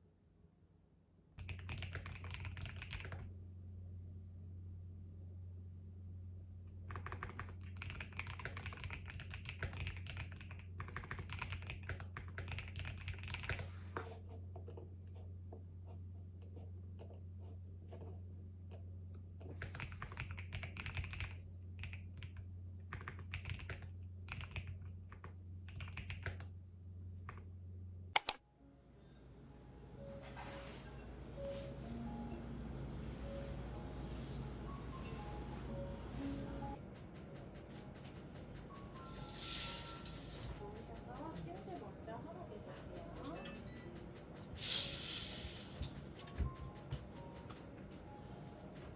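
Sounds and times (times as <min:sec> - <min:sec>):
steady low hum: 0:00.0 - 0:48.9
typing on a keyboard: 0:01.4 - 0:03.3, 0:06.9 - 0:13.7, 0:19.4 - 0:26.5, 0:36.8 - 0:41.9, 0:42.7 - 0:44.6, 0:45.8 - 0:47.8
sharp click: 0:28.2 - 0:28.4.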